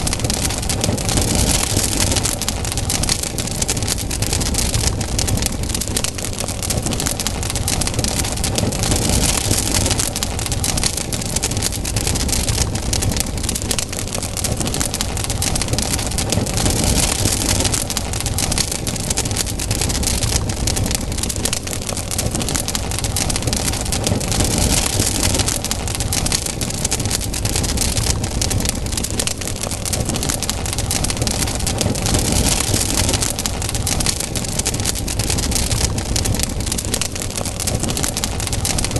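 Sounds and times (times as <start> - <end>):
campfire crackling: 0.0 - 38.9.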